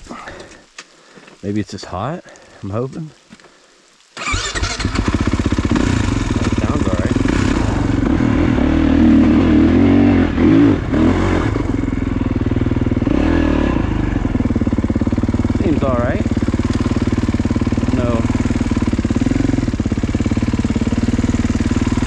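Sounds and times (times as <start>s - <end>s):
motorcycle engine starting and idling: 4.2s - 22.0s.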